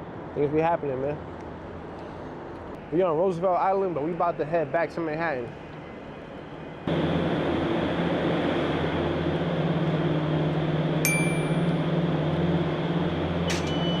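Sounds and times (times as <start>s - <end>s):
metallic ding: 11.1s - 11.9s, 13.5s - 14.0s.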